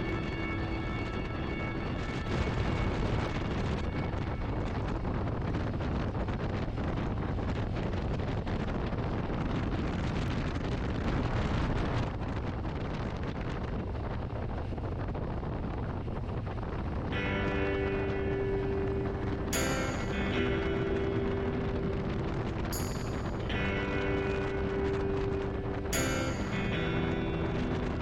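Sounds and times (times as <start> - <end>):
music with steady tones: 0.0 - 5.4, 17.1 - 28.0
wind rushing over microphone: 0.0 - 28.0.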